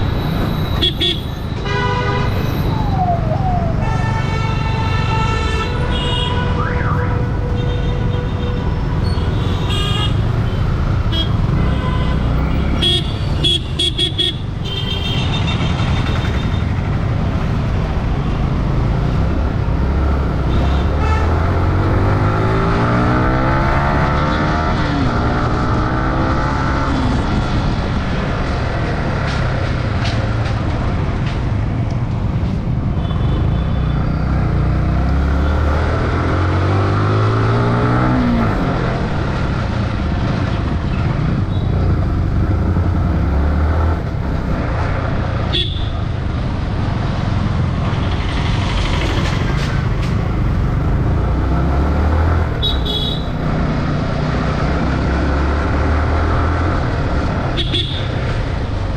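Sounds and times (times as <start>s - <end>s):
vehicle horns honking: 0.7s - 2.4s, 3.8s - 16.7s, 20.5s - 21.6s, 45.5s - 46.0s, 52.6s - 53.4s, 57.6s - 58.2s.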